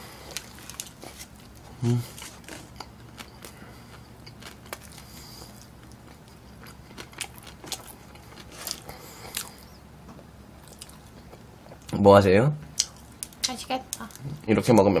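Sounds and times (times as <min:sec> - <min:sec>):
chewing and mouth clicks: 0:02.4 - 0:09.7, 0:10.6 - 0:12.0.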